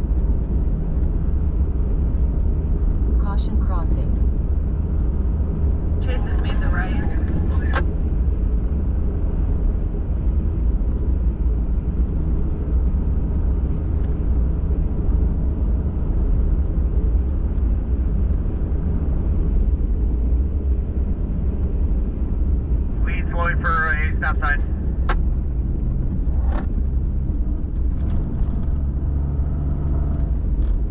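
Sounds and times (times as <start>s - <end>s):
truck engine and tyre rumble: 0.0s - 30.9s.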